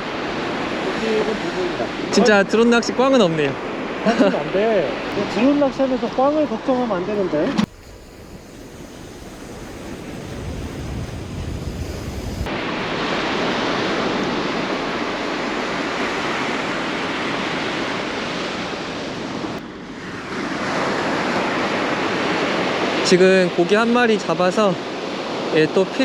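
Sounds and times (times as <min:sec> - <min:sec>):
wind buffeting microphone: 0:00.0 - 0:22.8
waves washing on beach: 0:00.0 - 0:26.0.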